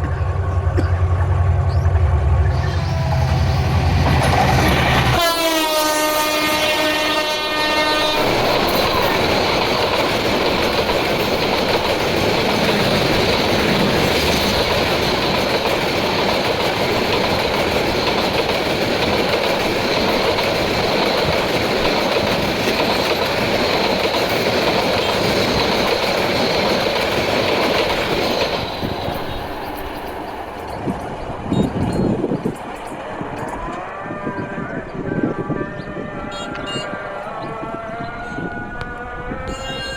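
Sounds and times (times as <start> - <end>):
train wheels rushing on rail: 0.0 - 39.9
train horn: 4.7 - 9.2, 33.6 - 39.9.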